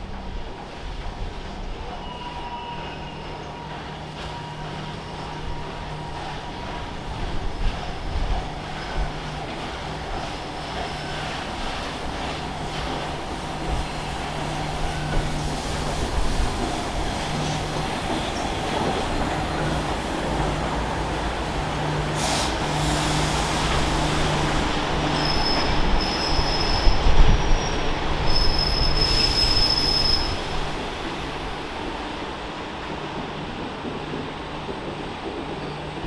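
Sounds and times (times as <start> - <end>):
train passing on rails: 0.0 - 36.0
train wheels squealing: 1.7 - 6.8, 10.1 - 31.9, 35.4 - 36.0.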